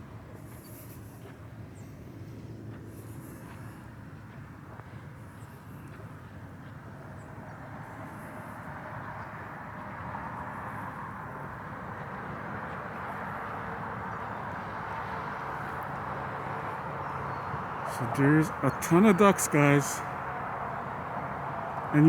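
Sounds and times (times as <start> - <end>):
distant engine noise: 7.2 - 22.0.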